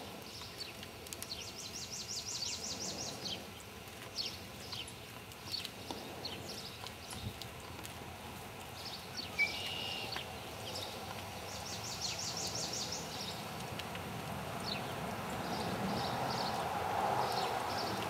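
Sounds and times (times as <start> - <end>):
small birds chirping: 0.2 - 7.4, 8.8 - 13.6
bird trill: 9.4 - 10.1
bird whistle: 9.4 - 10.1.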